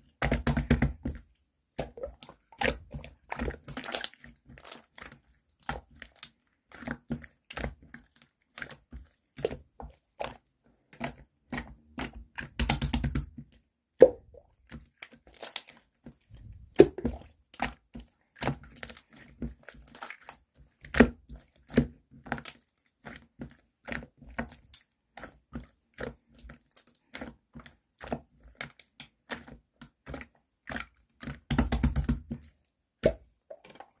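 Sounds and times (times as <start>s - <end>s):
rapid slime squelching: 0.0s - 34.0s
slime squished by hand: 0.2s - 8.8s, 14.0s - 17.8s.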